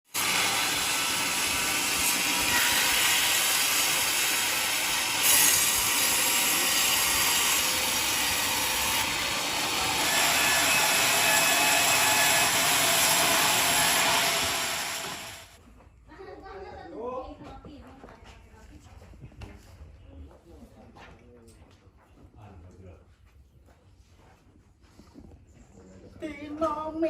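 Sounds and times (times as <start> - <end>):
sawmill blade cutting log: 0.1 - 15.6.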